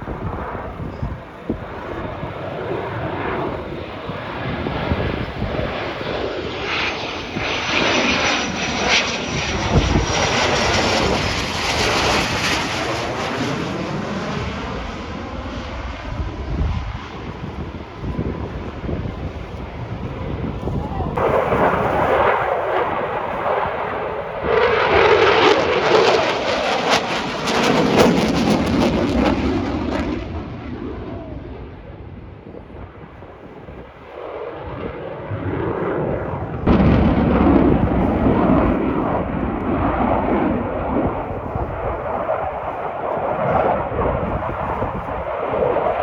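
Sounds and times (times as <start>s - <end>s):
loud crackling jet engine roar: 0.0s - 46.0s.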